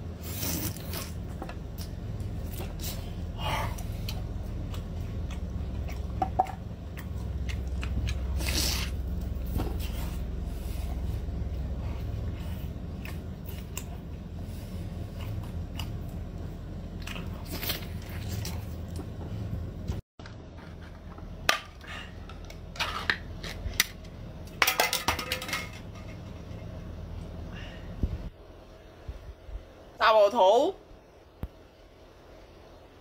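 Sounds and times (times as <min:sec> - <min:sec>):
low steady hum: 0:00.0 - 0:33.0
wet chewing: 0:00.2 - 0:09.4, 0:12.1 - 0:19.2.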